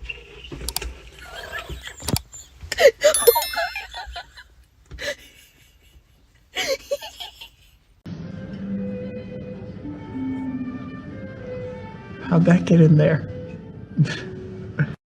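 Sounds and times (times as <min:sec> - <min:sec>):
background music: 0:08.2 - 0:14.8.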